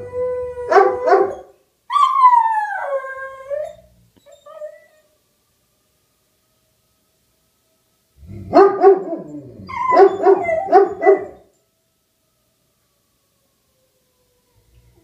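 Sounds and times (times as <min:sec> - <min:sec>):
dog barking: 0:00.7 - 0:01.4, 0:08.5 - 0:09.2, 0:09.9 - 0:11.4.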